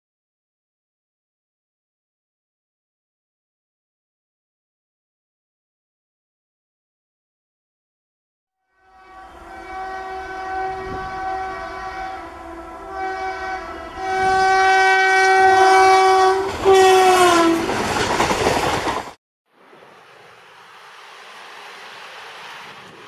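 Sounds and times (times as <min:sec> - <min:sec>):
locomotive horn blasts: 0:08.6 - 0:17.8
train coaches rushing past: 0:08.9 - 0:19.2, 0:19.8 - 0:23.0.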